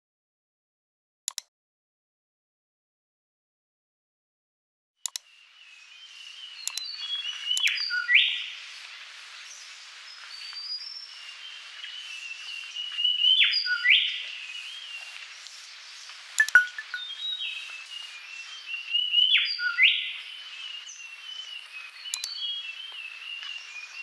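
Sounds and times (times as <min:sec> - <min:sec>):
sharp clicks: 0:01.3 - 0:01.5, 0:05.1 - 0:05.3, 0:06.7 - 0:06.9, 0:16.4 - 0:17.0, 0:22.1 - 0:22.4
bird whistling and chirping: 0:05.8 - 0:08.6, 0:09.5 - 0:15.2, 0:16.4 - 0:24.0.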